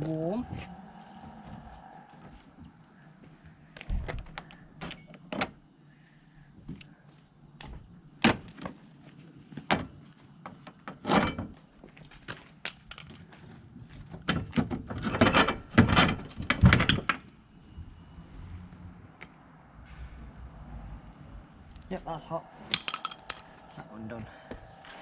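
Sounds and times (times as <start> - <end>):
metal tools clinking: 7.6 - 9.2, 14.5 - 18.1, 22.7 - 23.6
sharp metal strike ringing: 22.6 - 24.0.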